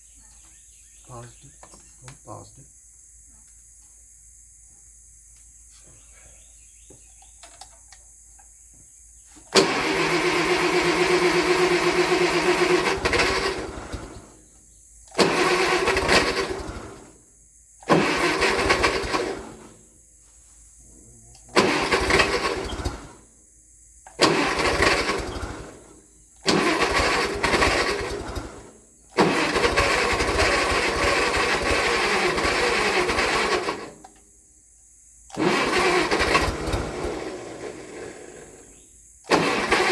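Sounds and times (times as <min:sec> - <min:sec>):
engine cranking by starter: 0:09.4 - 0:19.9, 0:21.4 - 0:23.3, 0:24.0 - 0:34.3, 0:35.3 - 0:39.9.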